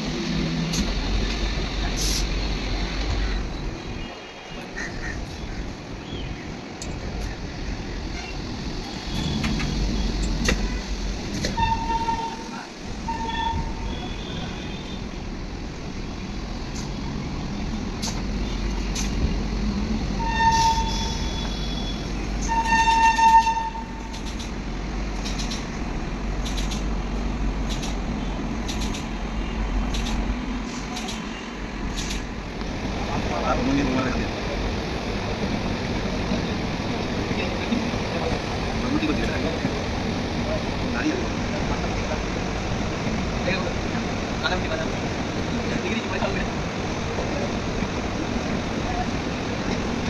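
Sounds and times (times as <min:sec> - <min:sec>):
low engine rumble: 0:00.0 - 0:50.0
vehicle horn toots: 0:11.4 - 0:15.1, 0:20.2 - 0:24.1.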